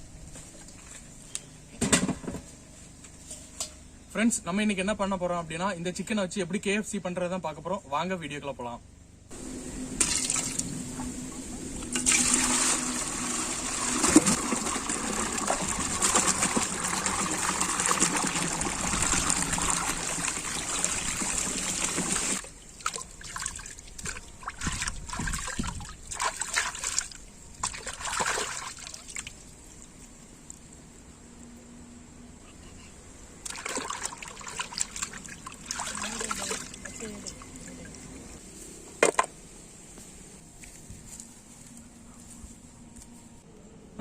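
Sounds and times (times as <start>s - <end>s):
water running and splashing: 10.0s - 30.1s, 33.5s - 38.1s
water trickling: 33.5s - 38.4s.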